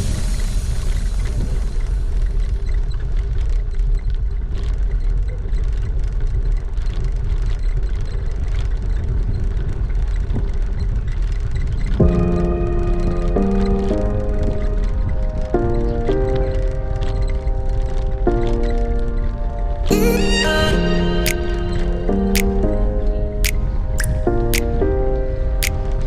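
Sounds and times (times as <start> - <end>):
wind rumbling on microphone: 0.0 - 26.0
faint clicks and rattles: 1.8 - 20.0
background music: 12.0 - 26.0.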